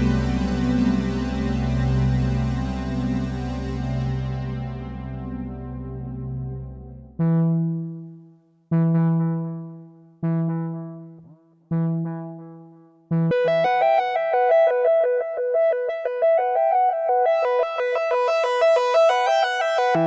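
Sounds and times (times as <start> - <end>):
fast synthesizer arpeggio: 0.0 - 7.9, 13.2 - 20.0
low synthesizer note: 0.0 - 8.1, 8.7 - 14.0.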